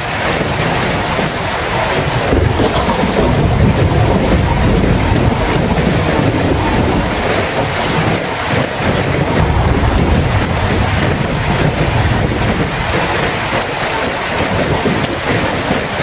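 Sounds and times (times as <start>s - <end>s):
rain falling: 0.0s - 16.0s
low rumble: 0.6s - 14.3s.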